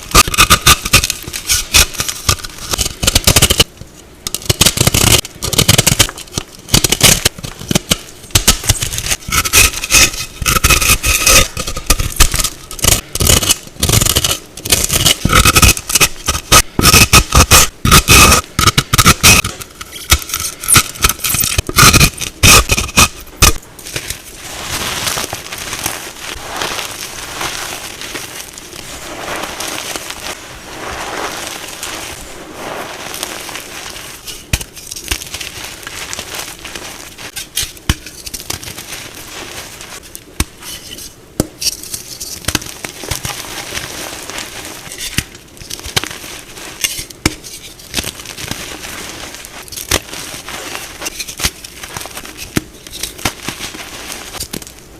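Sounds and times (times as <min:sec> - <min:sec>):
chalk being crushed: 0:00.0 - 0:03.8, 0:04.4 - 0:54.8
chalk crackling and scraping: 0:00.0 - 0:54.9.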